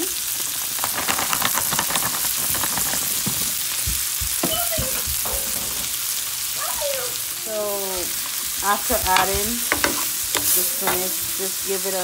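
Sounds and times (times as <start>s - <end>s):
spinach sizzling in hot oil: 0.0s - 12.0s
spoon knocking against pot: 9.1s - 11.1s.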